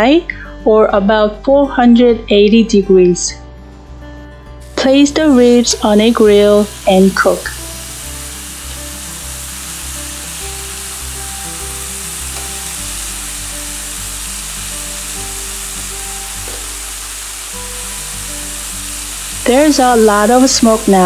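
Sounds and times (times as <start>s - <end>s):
background music: 0.0s - 21.0s
meat sizzling on a grill: 4.6s - 21.0s.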